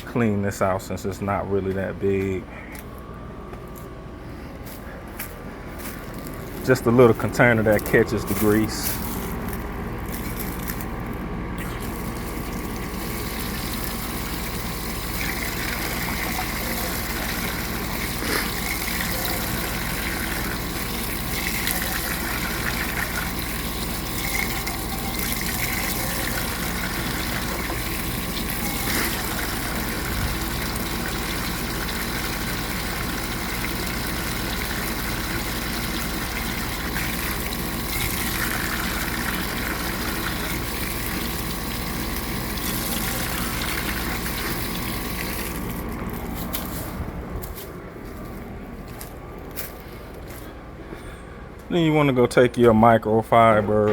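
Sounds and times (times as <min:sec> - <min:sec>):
water splashing in container: 0:11.6 - 0:45.8
water running from faucet: 0:11.7 - 0:45.8.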